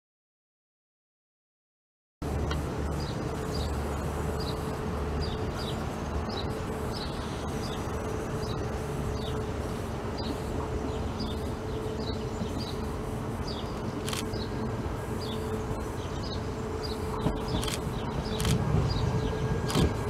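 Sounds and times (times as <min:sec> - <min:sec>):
approaching train rumble: 0:02.2 - 0:20.0
railcar humming: 0:02.2 - 0:20.0.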